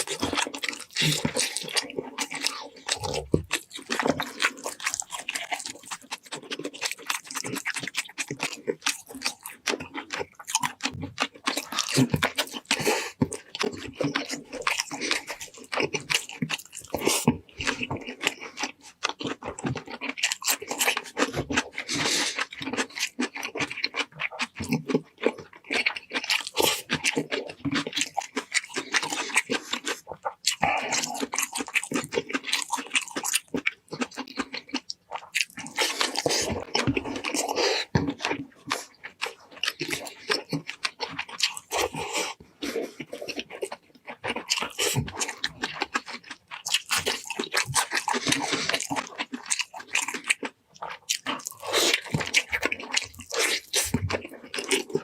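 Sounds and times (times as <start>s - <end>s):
chewing and crunching: 0.0s - 55.0s.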